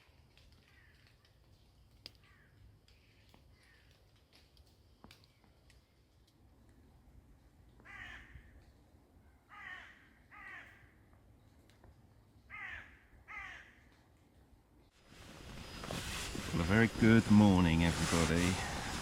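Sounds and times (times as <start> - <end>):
crow-like bird cawing: 2.2 - 3.9, 7.8 - 8.6, 9.4 - 11.0, 12.5 - 13.9.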